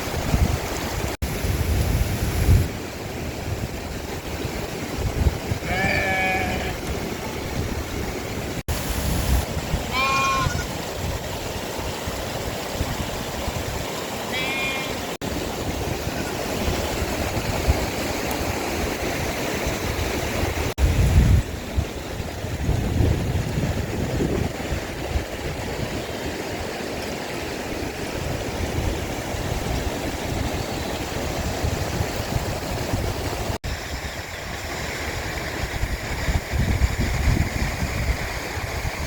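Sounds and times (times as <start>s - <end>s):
stream rushing: 0.0s - 39.0s
sheep bleating: 5.6s - 6.8s, 9.9s - 10.7s, 14.3s - 15.0s.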